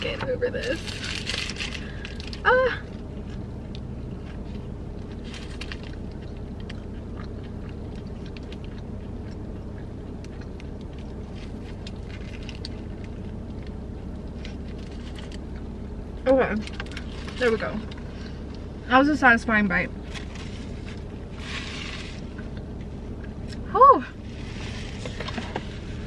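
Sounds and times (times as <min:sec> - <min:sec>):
steady low hum: 0:00.0 - 0:26.0
paper wrap crinkling: 0:00.6 - 0:02.4
person chewing: 0:01.0 - 0:16.0.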